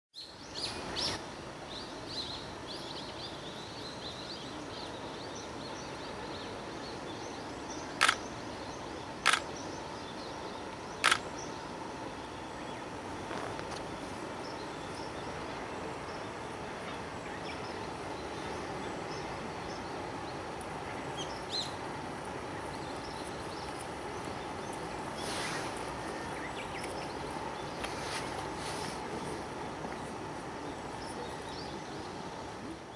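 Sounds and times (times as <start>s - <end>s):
birds chirping: 1.8s - 32.9s
sharp clicks: 8.0s - 8.2s, 9.2s - 9.5s, 11.0s - 11.2s.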